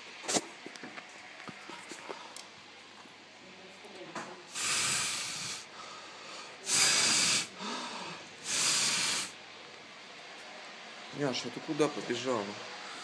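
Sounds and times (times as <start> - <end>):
hissing gusts of blown air: 4.4 - 13.0.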